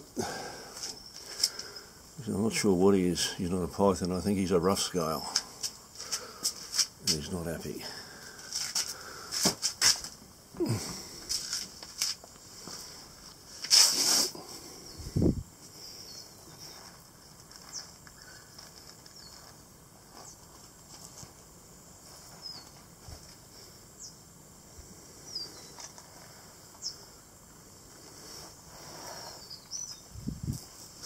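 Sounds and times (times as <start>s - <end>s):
faint bird chirps: 15.9s - 16.8s, 22.4s - 22.8s, 26.8s - 27.1s, 29.1s - 30.2s.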